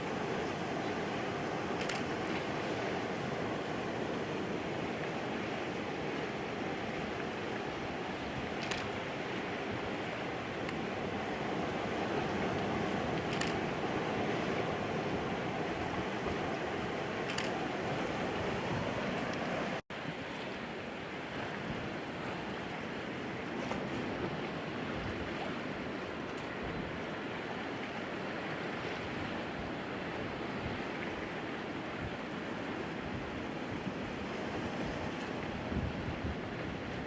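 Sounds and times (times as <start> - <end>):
wind buffeting microphone: 31.9 - 37.0.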